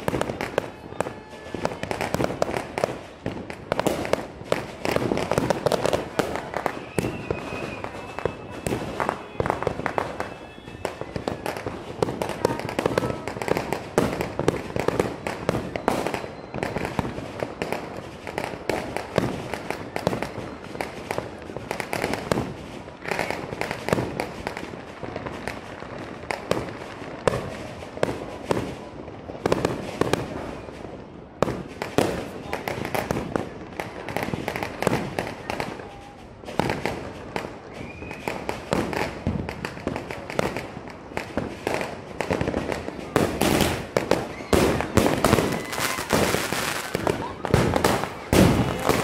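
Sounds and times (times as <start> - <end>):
fireworks and firecrackers banging: 0.0 - 49.0.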